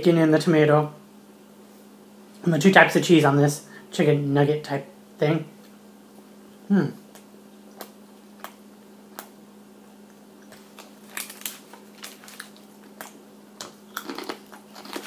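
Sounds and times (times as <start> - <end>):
faint steady hum: 0.0 - 15.0
person chewing: 7.1 - 9.4, 10.0 - 15.0.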